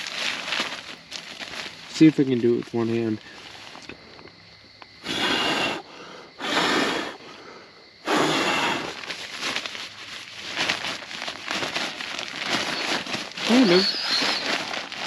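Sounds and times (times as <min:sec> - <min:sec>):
fabric rustling and crinkling: 0:00.0 - 0:03.9, 0:08.9 - 0:15.0
air whooshing into bag: 0:08.1 - 0:15.0.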